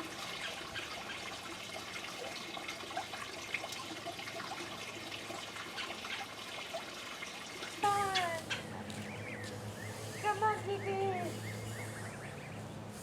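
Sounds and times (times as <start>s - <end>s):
trickle of running water: 0.0s - 9.0s
faint bird chirps: 9.0s - 12.6s.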